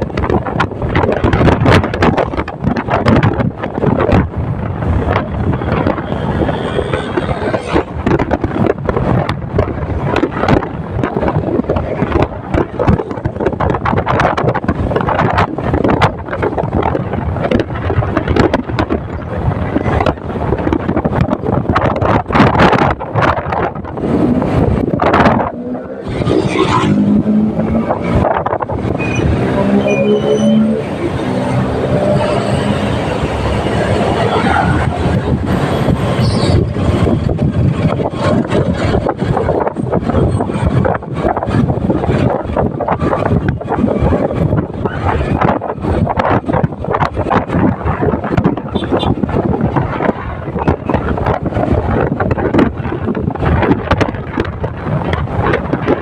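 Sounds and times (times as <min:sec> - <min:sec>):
motorcycle running noise: 0:00.0 - 0:56.0
wind buffeting microphone: 0:00.0 - 0:56.0.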